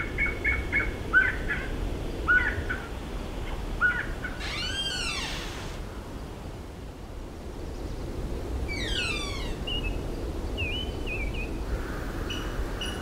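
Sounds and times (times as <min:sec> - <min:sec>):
birds calling: 0:03.8 - 0:05.8, 0:08.7 - 0:10.0
birds chirping: 0:04.0 - 0:05.8, 0:08.7 - 0:10.0.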